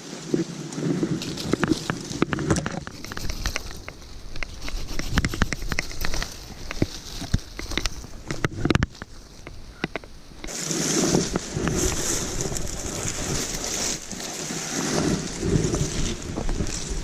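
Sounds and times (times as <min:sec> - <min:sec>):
gusty wind buffeting microphone: 0:00.2 - 0:17.0
rain: 0:10.2 - 0:17.0.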